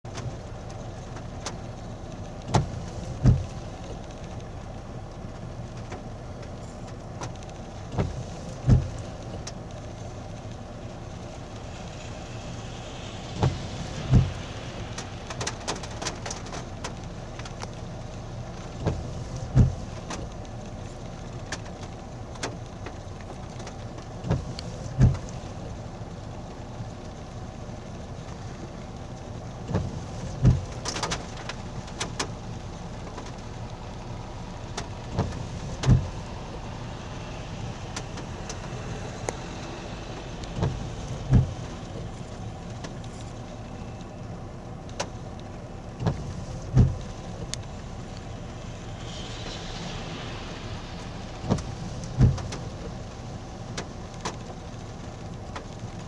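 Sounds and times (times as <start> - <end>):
steady rain: 0.0 - 56.0
low hum: 32.6 - 55.3.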